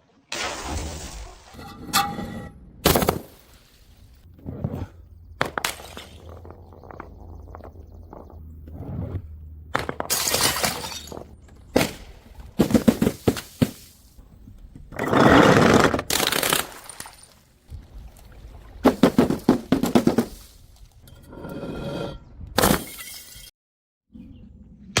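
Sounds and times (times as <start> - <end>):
glass bottles smashing: 10.0 - 11.3, 22.6 - 23.5.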